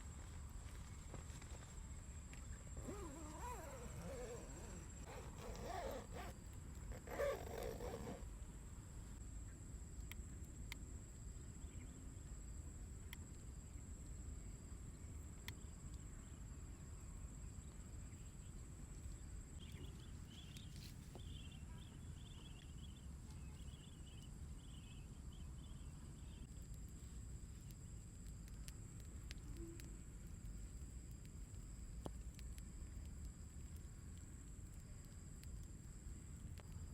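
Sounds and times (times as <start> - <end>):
insect droning: 0.0 - 36.9
light ticks: 10.0 - 10.9, 27.5 - 36.9.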